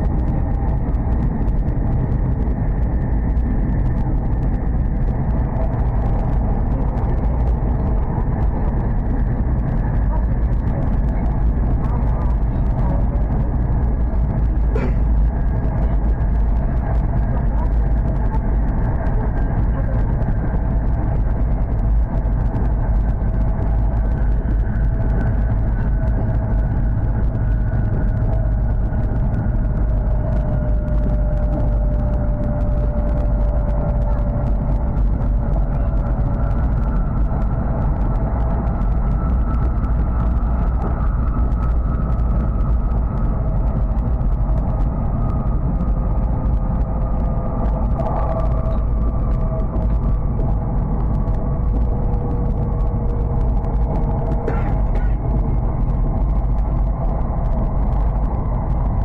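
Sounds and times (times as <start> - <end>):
faint high whine: 0.0 - 59.0
faint hum: 0.0 - 59.0
train wheels rumbling on track: 0.0 - 59.0.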